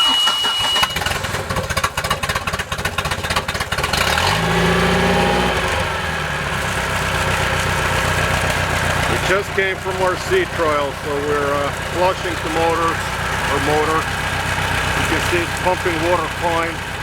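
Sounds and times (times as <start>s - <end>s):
warning buzzer beeping: 0.0s - 1.1s
boat engine cranking and idling: 0.0s - 17.0s.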